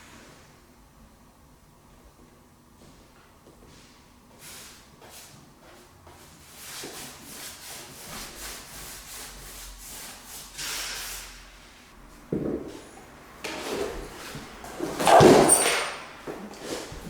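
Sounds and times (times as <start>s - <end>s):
sanding strokes on wood: 6.5s - 10.6s.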